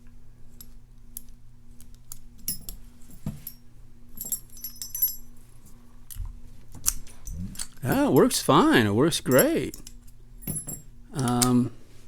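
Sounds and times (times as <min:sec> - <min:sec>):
steady low hum: 0:00.0 - 0:12.0
tools clicking in a padlock: 0:09.3 - 0:11.6.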